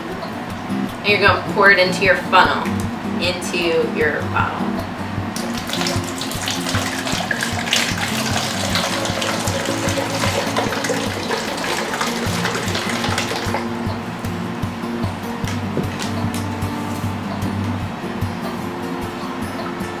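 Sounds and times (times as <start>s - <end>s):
background music: 0.0s - 20.0s
liquid pouring and splashing: 5.4s - 13.8s.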